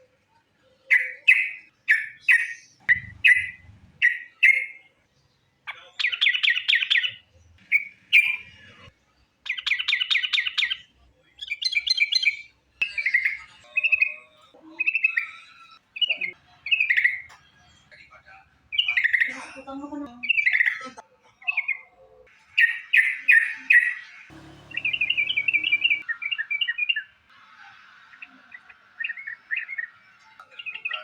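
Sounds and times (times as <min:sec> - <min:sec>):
bird chirps: 0:00.8 - 0:04.9, 0:22.6 - 0:27.1
whistled bird notes: 0:00.9 - 0:04.9, 0:22.6 - 0:27.1
fast rattling bird trills: 0:24.3 - 0:26.0.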